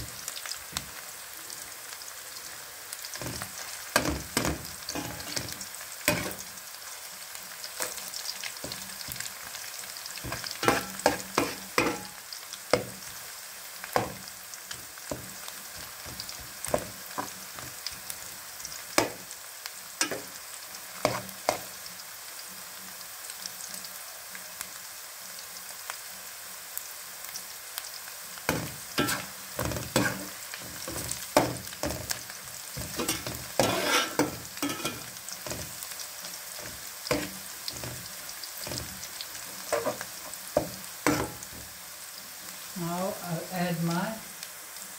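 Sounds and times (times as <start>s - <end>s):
food sizzling in hot oil: 0.0s - 44.9s
metal spoon scraping a pot: 4.4s - 6.4s, 10.2s - 12.1s, 28.5s - 32.2s, 32.8s - 35.8s, 36.6s - 39.0s, 39.6s - 41.5s.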